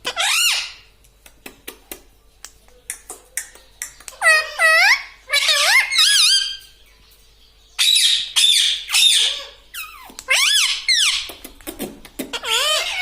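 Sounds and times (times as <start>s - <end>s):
parrot squawking: 0.0s - 0.8s, 4.1s - 6.7s, 7.8s - 11.4s, 12.3s - 13.0s.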